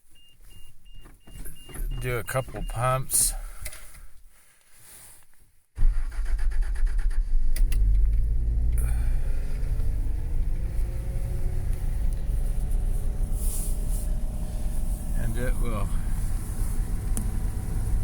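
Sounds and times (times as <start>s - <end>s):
starter cranking engine: 5.8s - 10.1s.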